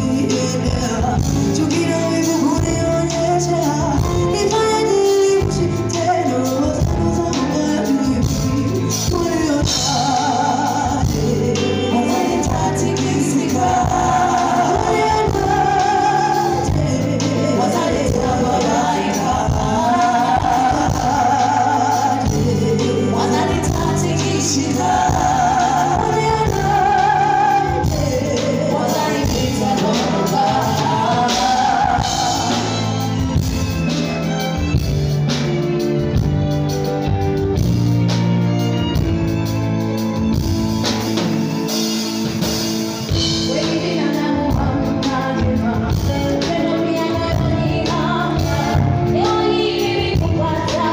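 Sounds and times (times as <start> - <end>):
person singing with vibrato: 0.0 - 33.8
live band music: 0.0 - 50.9.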